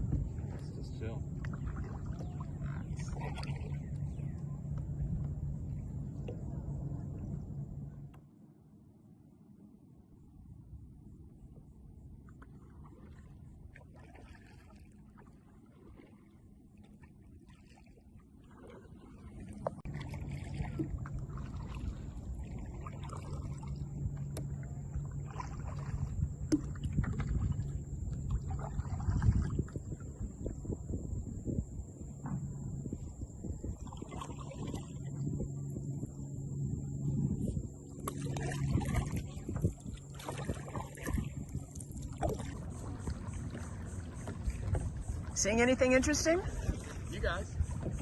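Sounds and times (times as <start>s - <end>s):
paddle strokes: 0.0s - 8.3s, 11.5s - 30.6s, 32.1s - 48.0s
water splashing against hull: 0.0s - 8.4s, 10.8s - 48.0s
low steady hum: 0.0s - 48.0s.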